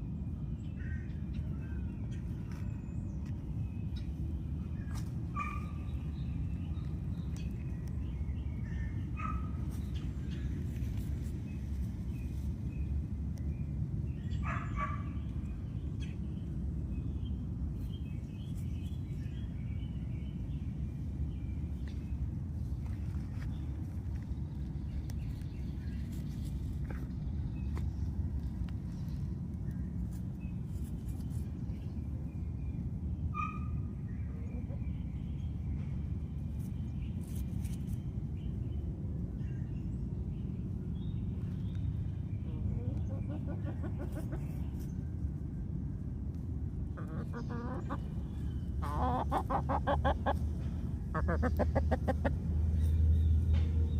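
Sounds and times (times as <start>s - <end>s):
low outdoor rumble: 0.0s - 53.9s
small birds calling: 0.0s - 53.9s
chickens calling: 42.4s - 45.0s, 46.9s - 53.0s.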